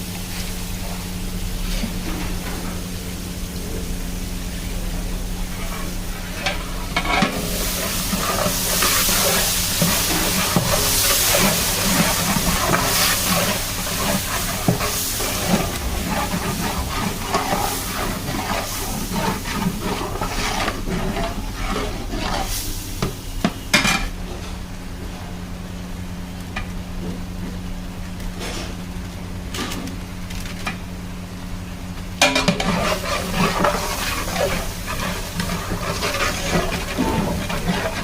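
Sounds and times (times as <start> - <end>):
chicken sizzling in a pot: 0.0 - 24.1, 29.9 - 38.0
metal ladle scraping pot: 5.5 - 23.2, 32.2 - 38.0.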